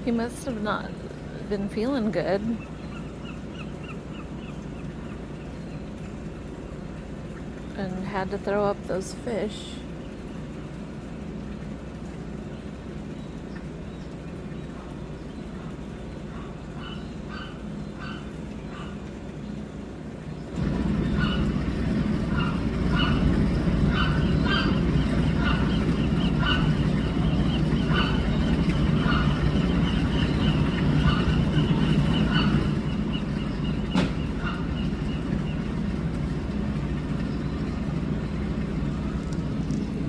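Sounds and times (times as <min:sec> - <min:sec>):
steady low rumble: 0:00.0 - 0:40.0
gull calls: 0:15.6 - 0:19.0, 0:21.0 - 0:35.6.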